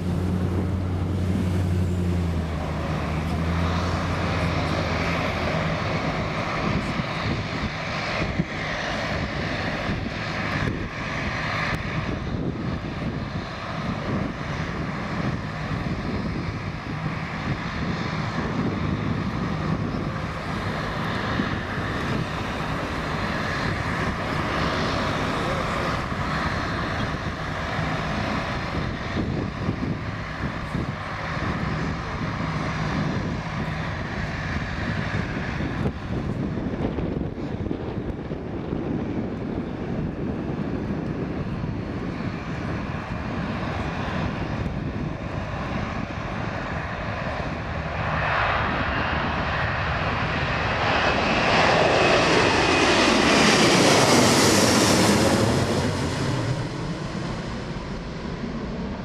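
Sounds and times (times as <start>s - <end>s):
jet engines roaring: 0.0s - 59.0s.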